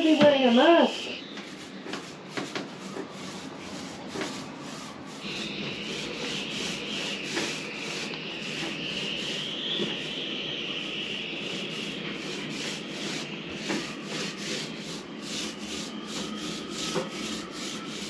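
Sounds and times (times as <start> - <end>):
high steady whine: 0.0 - 1.8, 4.8 - 18.0
abrasive sanding: 0.0 - 18.0.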